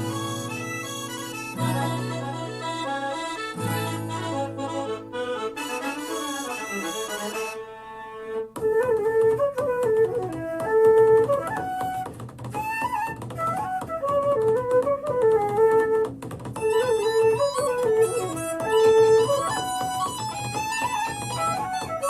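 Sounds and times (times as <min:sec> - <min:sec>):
instrumental music through a speaker: 0:00.0 - 0:22.0.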